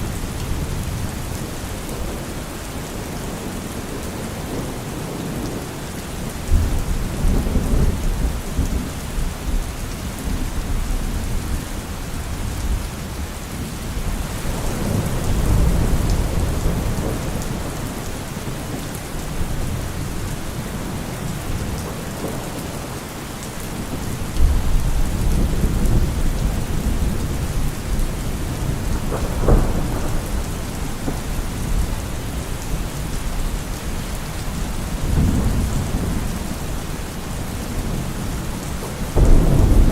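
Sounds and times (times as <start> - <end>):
rain falling on leaves: 0.0 - 39.9
distant thunder rumbles: 14.1 - 23.0, 23.7 - 34.0, 35.0 - 39.9.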